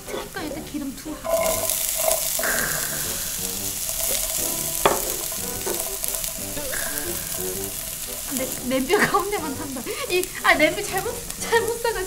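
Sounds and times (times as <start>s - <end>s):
aromatics sizzling in hot oil: 0.0s - 12.0s
chopsticks stirring in pot: 1.2s - 12.0s.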